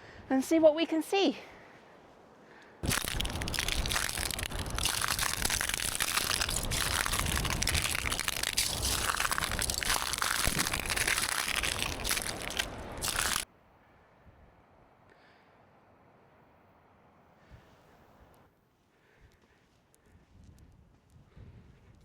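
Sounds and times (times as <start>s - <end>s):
footsteps crunching on gritty ground: 2.8s - 13.4s.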